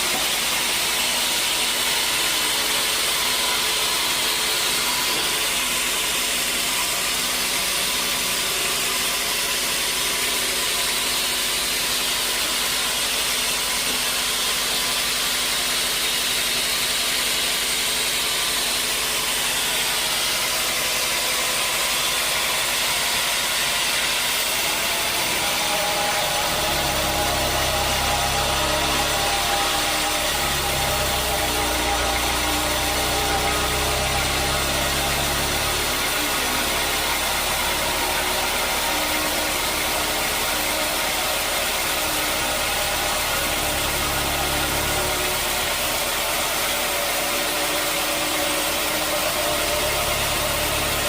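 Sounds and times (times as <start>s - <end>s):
sawmill machinery running: 0.0s - 51.0s
deep hum: 24.4s - 51.0s.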